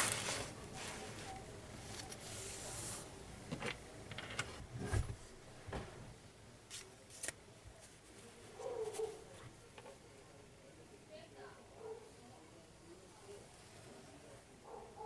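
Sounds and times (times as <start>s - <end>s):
paper and stationery rustling: 0.0s - 3.1s, 6.7s - 9.5s.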